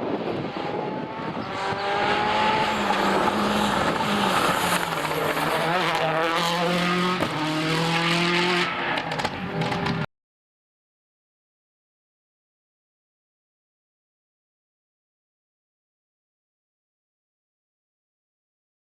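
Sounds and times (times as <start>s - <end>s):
rally car engine revving: 0.2s - 10.1s.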